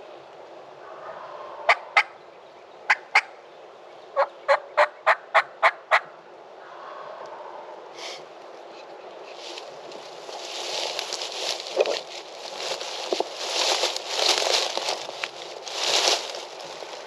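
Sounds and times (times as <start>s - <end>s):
turkey yelping: 4.2s - 6.1s.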